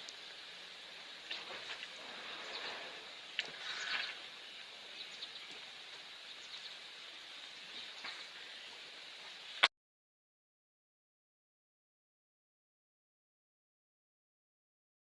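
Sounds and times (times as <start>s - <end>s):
soft steady rain: 0.0s - 9.7s.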